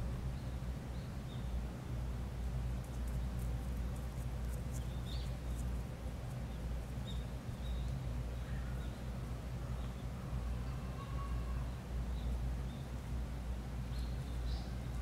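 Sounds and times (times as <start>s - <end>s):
steady low rumble: 0.0s - 9.5s
small birds chirping: 0.3s - 1.6s, 2.8s - 15.0s.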